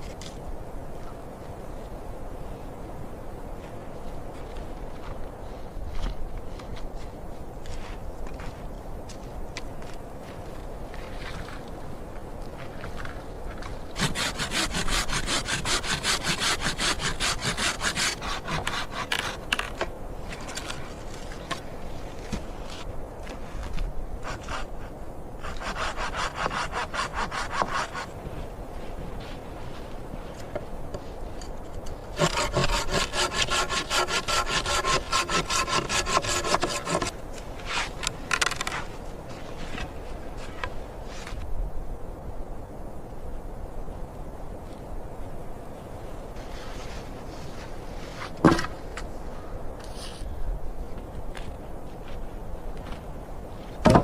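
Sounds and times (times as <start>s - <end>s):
hand saw cutting wood: 14.0s - 19.7s, 25.4s - 28.1s, 32.1s - 38.8s.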